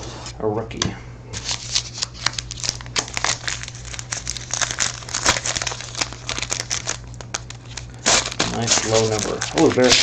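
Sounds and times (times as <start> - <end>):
steady low hum: 0.0 - 10.0
plastic packaging crinkling: 1.4 - 10.0.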